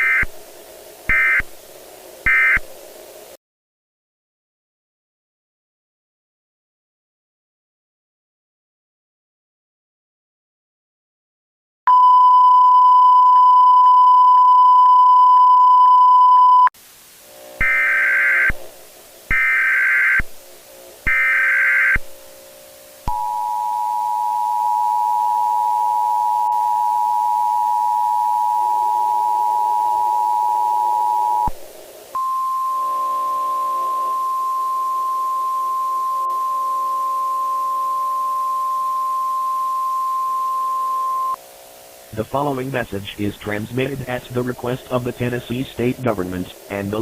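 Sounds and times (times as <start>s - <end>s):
screechy digital data bursts: 0.0s - 0.3s, 1.1s - 1.5s, 2.2s - 2.7s, 17.6s - 18.6s, 19.3s - 20.3s, 21.0s - 22.1s
steady electronic beep: 11.9s - 16.7s, 23.1s - 31.5s, 32.2s - 41.4s.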